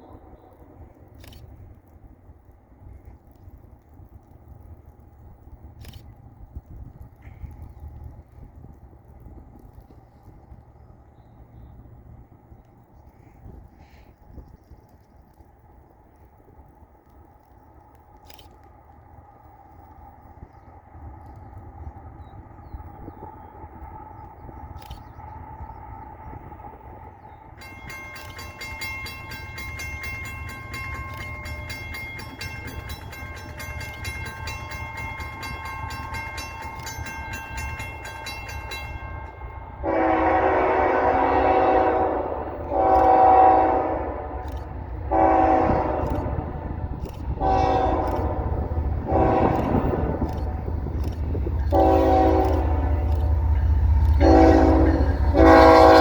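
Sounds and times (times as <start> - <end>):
approaching train rumble: 0.0 - 56.0
bell ringing: 27.6 - 39.5
locomotive horn blasts: 39.8 - 44.4, 45.1 - 50.8, 51.6 - 53.3, 53.9 - 56.0.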